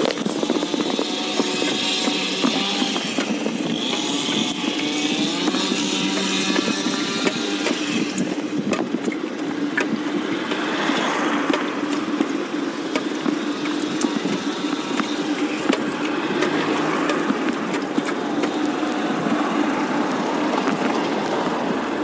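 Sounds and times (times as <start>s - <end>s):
lawn mower engine running: 0.0s - 22.0s.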